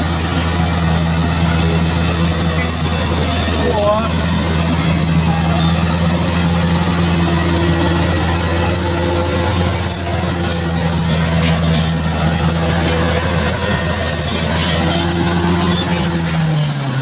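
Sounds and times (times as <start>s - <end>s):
bulldozer diesel engine running: 0.0s - 17.0s
crawler tracks squealing: 0.0s - 17.0s.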